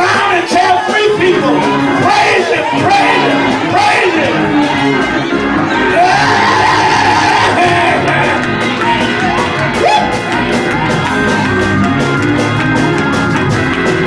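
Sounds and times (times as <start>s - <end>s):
voices singing: 0.0s - 10.7s
church band music: 0.0s - 14.0s
steady drumbeat: 0.0s - 14.0s
voices shouting: 1.4s - 10.3s.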